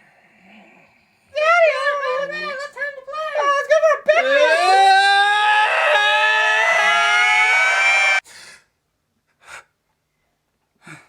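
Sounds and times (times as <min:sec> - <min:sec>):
loud scream rising in pitch: 0:04.2 - 0:08.2.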